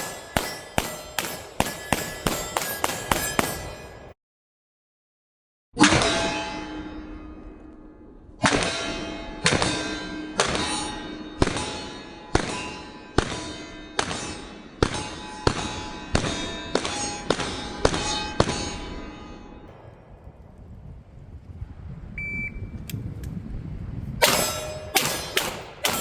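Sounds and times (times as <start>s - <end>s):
pistol shots: 0.0s - 3.8s, 24.2s - 26.0s
steel targets ringing: 0.0s - 4.2s, 5.8s - 20.0s, 24.2s - 26.0s.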